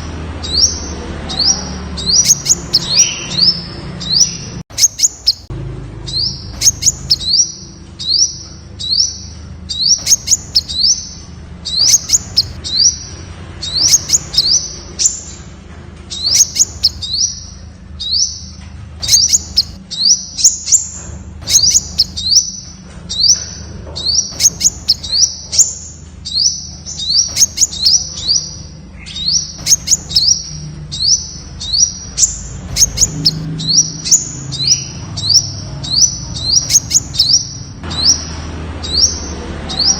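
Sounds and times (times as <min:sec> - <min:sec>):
bird calling high notes: 0:06.1 - 0:15.4.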